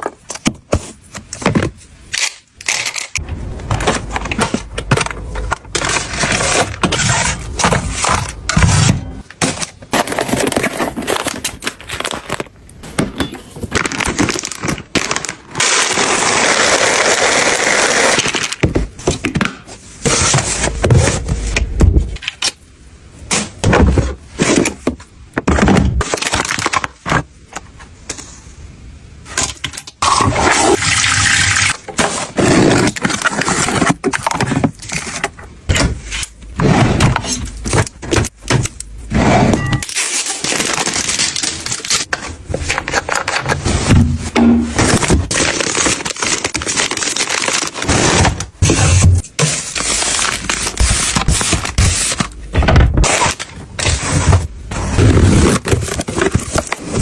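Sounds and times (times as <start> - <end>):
objects knocking and scraping: 31.8 - 38.8.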